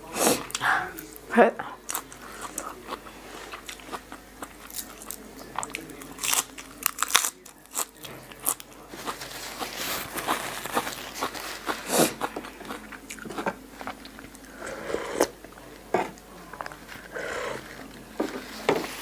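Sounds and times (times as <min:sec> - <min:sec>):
person crunching salad: 0:01.9 - 0:14.5.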